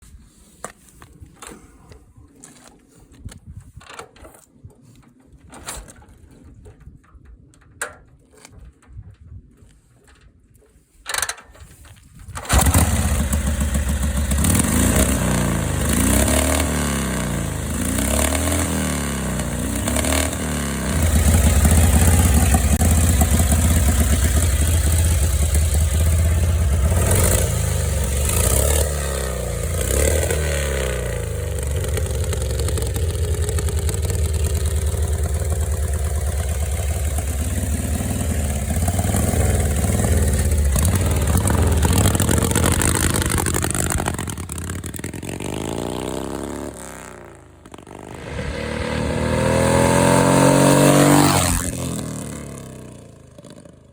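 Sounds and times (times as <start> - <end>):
motorcycle engine starting and revving: 11.1 - 53.9.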